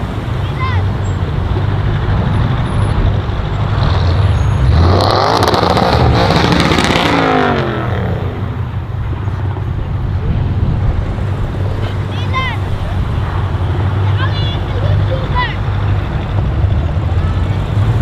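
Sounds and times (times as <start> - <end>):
car driving by: 0.0 - 18.0.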